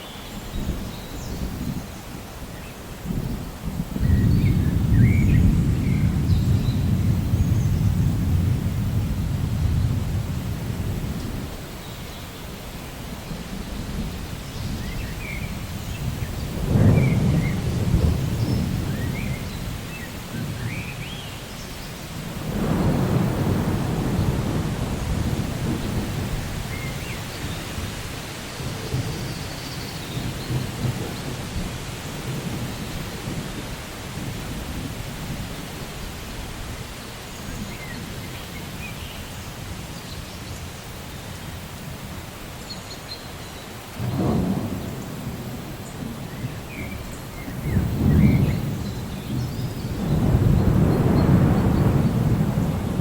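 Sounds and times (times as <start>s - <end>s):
steady rain: 0.0s - 53.0s
rolling thunder: 3.0s - 11.8s, 13.1s - 20.9s, 21.8s - 35.9s, 43.9s - 53.0s.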